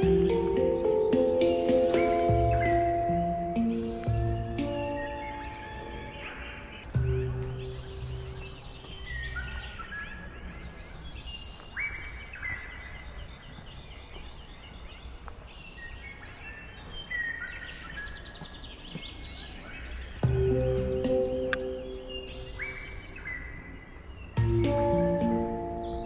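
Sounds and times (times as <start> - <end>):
low held music tone: 0.0 - 10.9, 20.2 - 26.0
birds singing: 0.0 - 26.0
outdoor background noise: 0.0 - 26.0.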